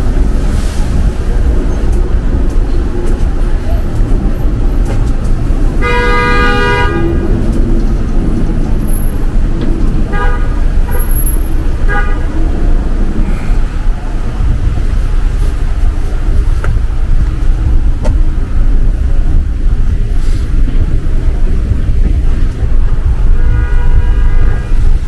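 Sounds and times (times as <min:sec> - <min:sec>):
city street traffic rumble: 0:00.0 - 0:25.0
horn-like tone: 0:05.8 - 0:07.2.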